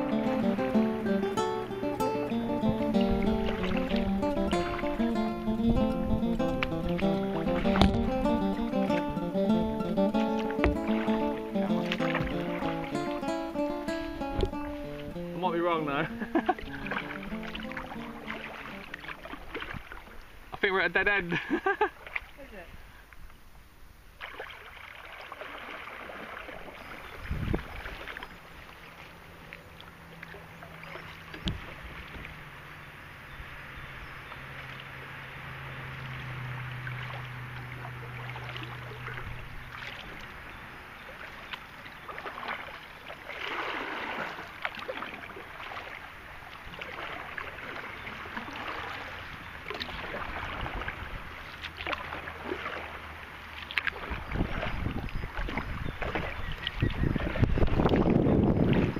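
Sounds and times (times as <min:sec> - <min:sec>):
paddle splashing in river water: 0:00.0 - 0:58.9
sharp knocks: 0:07.7 - 0:08.2.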